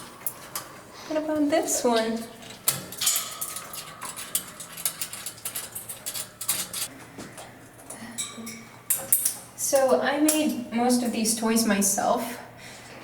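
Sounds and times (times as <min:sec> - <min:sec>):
bird toys clicking and rattling: 0:02.0 - 0:06.9.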